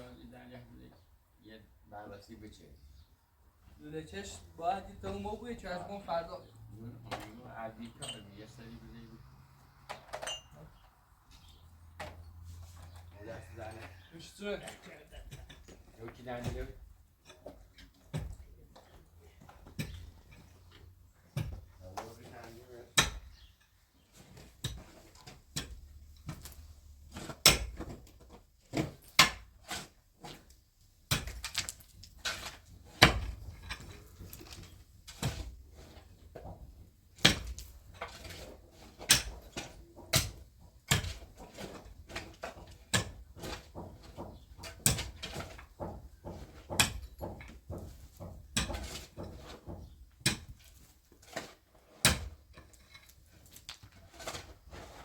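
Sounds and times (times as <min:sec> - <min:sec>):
sharp knocks and clatters: 0:14.7 - 0:55.0
faint scraping: 0:52.7 - 0:55.0.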